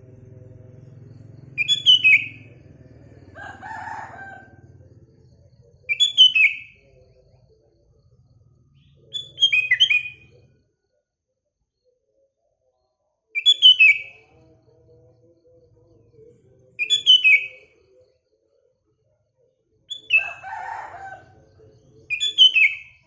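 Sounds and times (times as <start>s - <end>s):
rough bird call: 1.1s - 2.6s.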